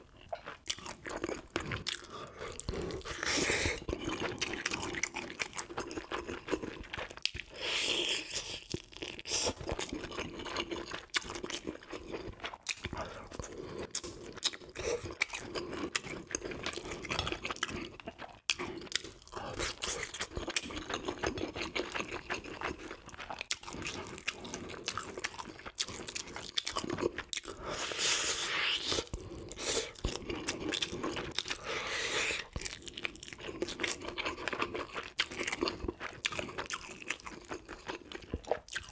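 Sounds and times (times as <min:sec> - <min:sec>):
chewing crunchy fish: 0:00.0 - 0:07.6, 0:08.2 - 0:38.9.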